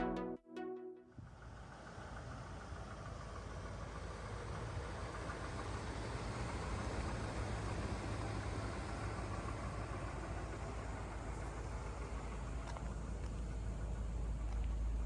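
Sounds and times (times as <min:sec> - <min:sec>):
intro music: 0:00.0 - 0:01.1
car engine idling: 0:01.2 - 0:15.0.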